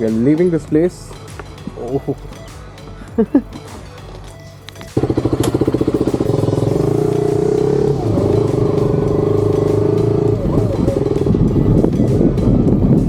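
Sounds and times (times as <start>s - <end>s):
motorcycle engine running: 5.0s - 13.0s.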